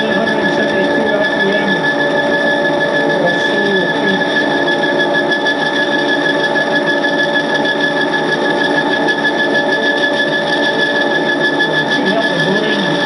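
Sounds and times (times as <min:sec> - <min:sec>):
high whine: 0:00.0 - 0:13.0
metal lathe running: 0:00.0 - 0:13.0.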